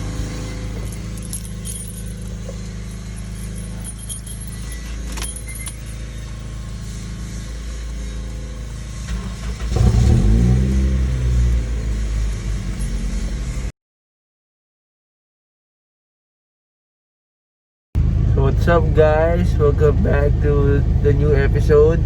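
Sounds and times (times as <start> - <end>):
car engine revving: 0.0 - 13.7.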